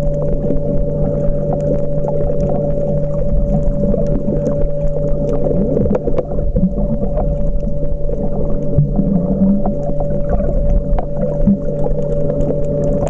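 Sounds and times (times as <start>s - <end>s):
low underwater hum: 0.0s - 13.0s
sharp clicks and crackles: 0.0s - 13.0s.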